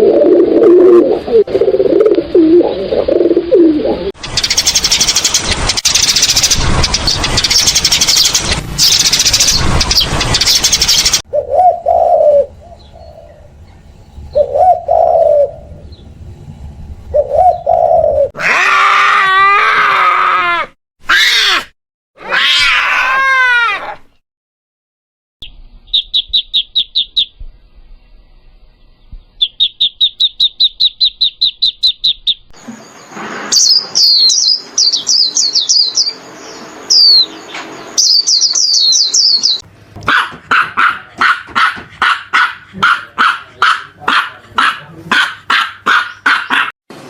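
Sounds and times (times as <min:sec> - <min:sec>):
rapid pulsed high chirping: 0:04.2 - 0:11.2, 0:25.4 - 0:32.5
sweeping bird-like chirps: 0:04.2 - 0:16.1, 0:25.4 - 0:39.6.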